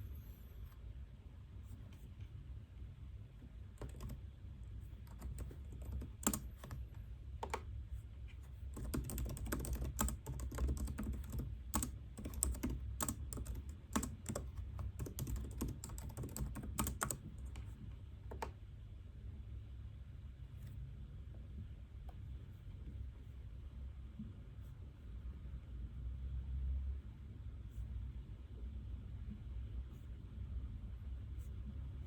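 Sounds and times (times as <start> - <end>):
low steady hum: 0.0 - 32.0
computer keyboard key clicks: 3.8 - 4.2, 5.1 - 6.8, 7.4 - 7.7, 8.8 - 17.7, 18.3 - 18.6.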